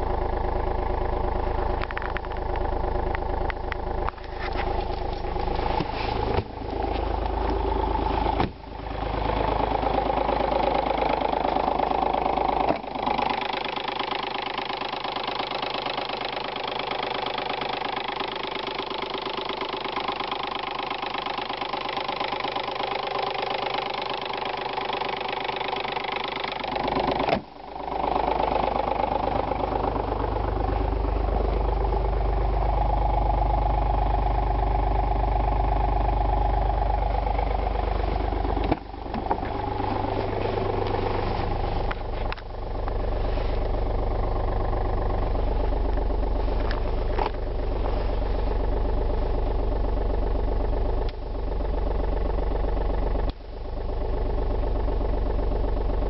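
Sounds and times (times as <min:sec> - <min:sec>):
diesel engine idling: 0:00.0 - 0:56.0
sharp engine thump: 0:05.7 - 0:07.1, 0:08.2 - 0:08.7, 0:27.2 - 0:27.6, 0:38.6 - 0:39.6.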